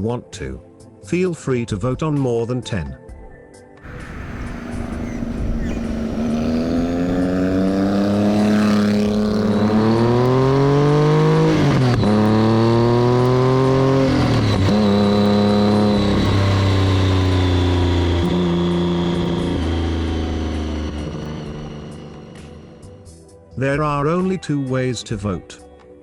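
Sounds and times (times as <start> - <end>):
motorcycle engine accelerating: 3.8 - 23.2.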